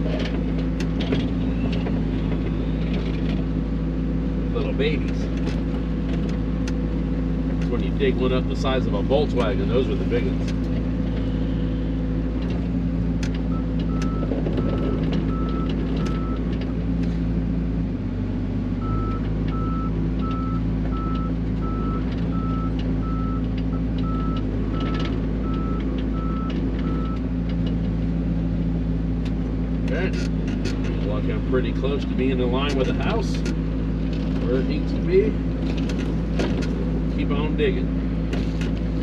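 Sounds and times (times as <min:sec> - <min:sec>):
digging clanks: 0:00.0 - 0:03.6, 0:29.2 - 0:39.0
diesel engine running: 0:00.0 - 0:39.0.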